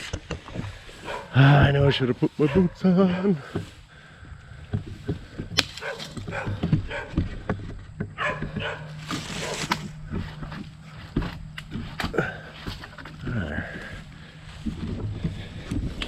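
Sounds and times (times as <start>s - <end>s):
footsteps: 0.0s - 16.0s
dog barking: 1.0s - 1.4s, 2.4s - 3.4s, 5.8s - 7.2s, 8.2s - 9.7s
sticks cracking: 5.4s - 6.7s, 8.8s - 13.2s.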